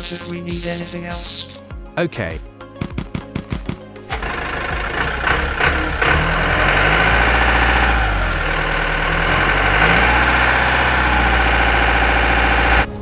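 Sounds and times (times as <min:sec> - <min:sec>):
engine idling: 0:04.0 - 0:13.0.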